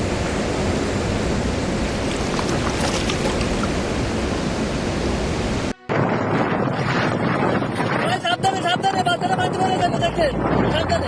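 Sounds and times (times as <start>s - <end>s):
rushing water: 0.0s - 5.8s.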